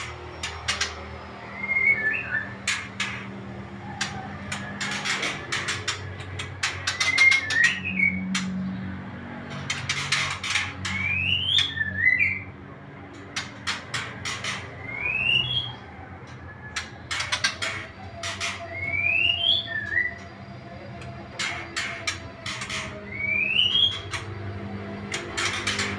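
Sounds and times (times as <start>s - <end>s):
birds chirping: 0.0s - 25.9s
rising bird whistle: 1.5s - 2.6s, 10.9s - 12.5s, 14.8s - 16.0s, 18.6s - 20.3s, 23.0s - 24.1s.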